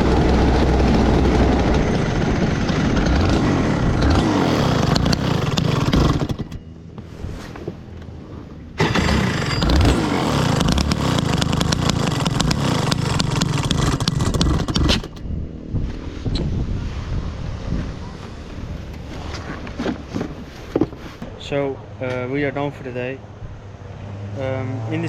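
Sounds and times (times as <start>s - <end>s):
kart engine running hard: 0.0s - 6.6s, 8.8s - 15.2s.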